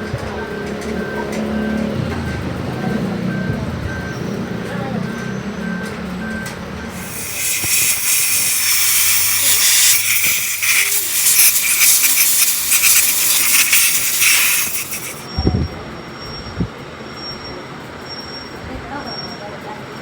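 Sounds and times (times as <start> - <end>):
loud steady hiss: 6.9 - 15.3.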